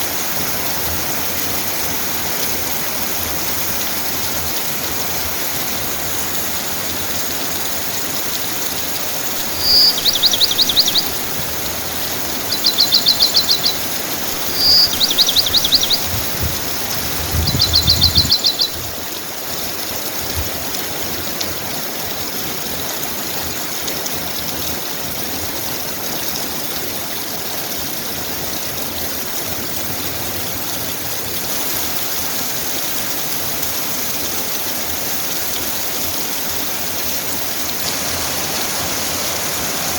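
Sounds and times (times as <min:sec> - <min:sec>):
steady rain falling: 0:00.0 - 0:39.9
songbird trilling: 0:09.1 - 0:19.0.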